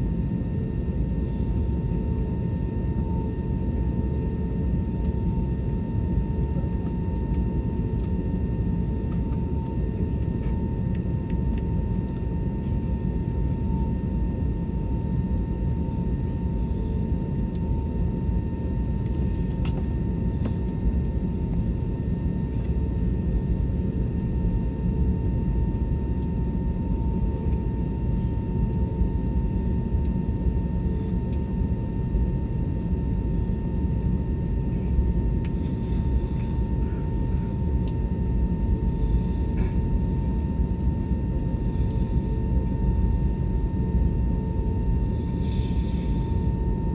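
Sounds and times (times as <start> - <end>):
jet engines running: 28.8 - 46.9.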